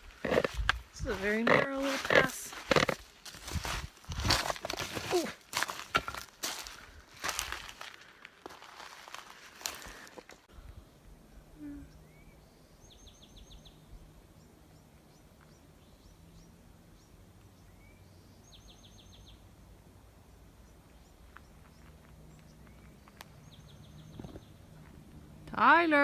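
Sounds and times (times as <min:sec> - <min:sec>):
songbird chirping: 0:10.7 - 0:26.0.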